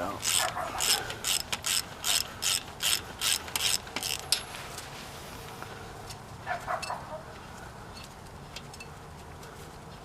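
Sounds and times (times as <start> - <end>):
ratchet wrench clicking: 0.1 - 4.5.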